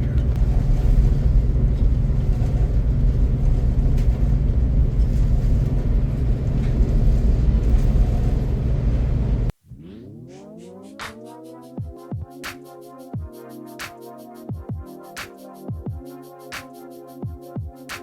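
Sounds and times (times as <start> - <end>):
train rumbling at speed: 0.0 - 9.5.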